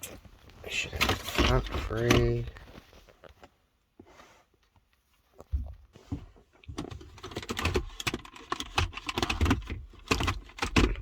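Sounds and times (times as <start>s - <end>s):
plastic clicks and rattles: 6.7s - 11.0s.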